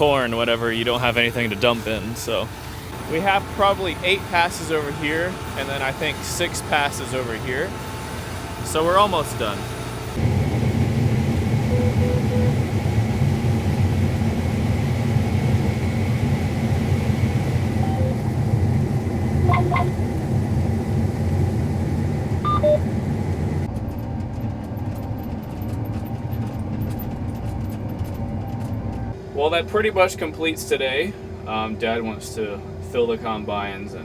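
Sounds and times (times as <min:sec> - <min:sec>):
farm machinery engine rumbling: 0:00.0 - 0:30.2
short electronic beeps: 0:19.4 - 0:19.9, 0:22.5 - 0:22.8.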